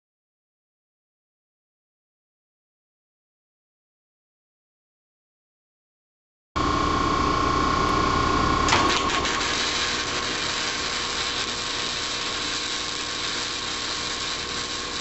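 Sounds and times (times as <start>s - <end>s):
welder arc buzzing sizzle: 6.6s - 15.0s
welder hum: 6.6s - 15.0s
sharp crack: 8.7s - 15.0s.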